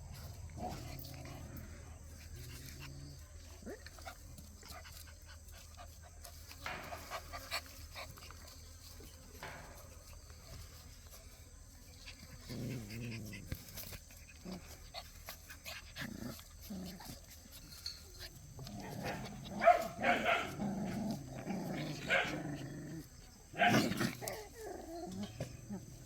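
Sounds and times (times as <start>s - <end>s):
puppies scuffling: 0.0s - 22.3s
puppies panting: 0.9s - 20.2s
puppy vocal sounds: 12.0s - 26.0s.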